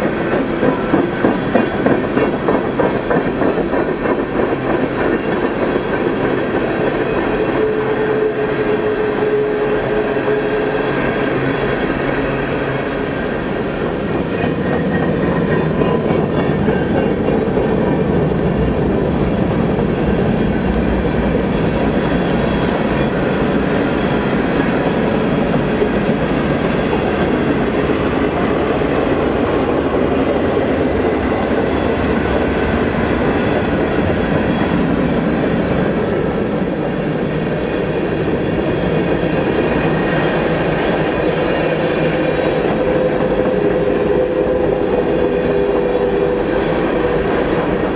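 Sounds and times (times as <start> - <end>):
freight train wheels on rails: 0.0 - 47.9.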